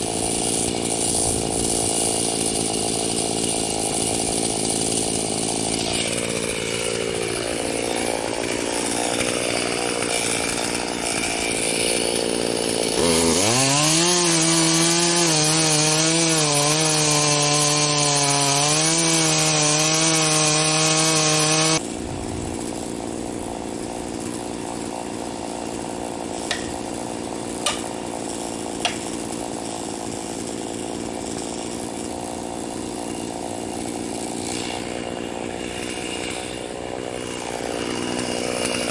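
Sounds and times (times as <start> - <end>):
chainsaw cutting into stump: 0.0 - 38.9.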